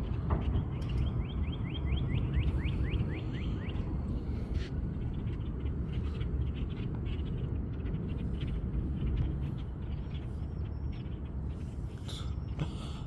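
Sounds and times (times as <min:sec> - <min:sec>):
low rumble of wind or traffic: 0:00.0 - 0:13.0
bird whistling song: 0:00.7 - 0:03.8.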